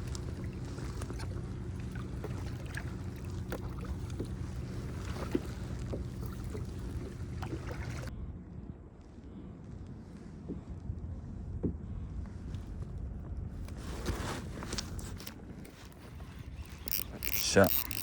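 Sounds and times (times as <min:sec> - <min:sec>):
small water splashes: 0:00.0 - 0:08.1
low hum: 0:00.0 - 0:13.6.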